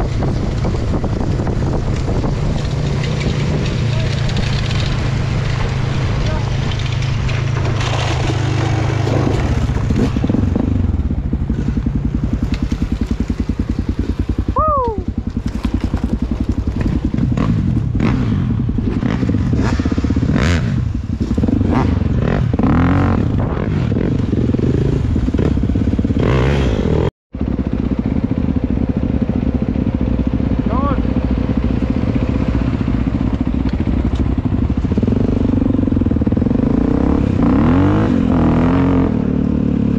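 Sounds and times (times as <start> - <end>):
bike clattering and scraping: 0.0 - 14.5, 15.1 - 26.8
dirt bike engine running: 0.0 - 39.9.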